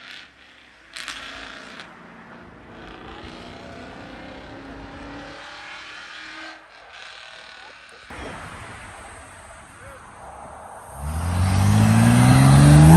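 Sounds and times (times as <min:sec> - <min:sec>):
loud engine burst: 0:10.8 - 0:12.9.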